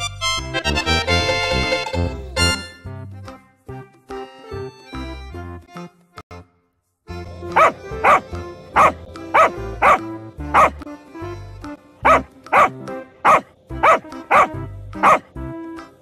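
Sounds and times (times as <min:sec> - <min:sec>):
light background music: 0:00.0 - 0:16.0
dog barking: 0:07.5 - 0:10.8, 0:12.0 - 0:15.3.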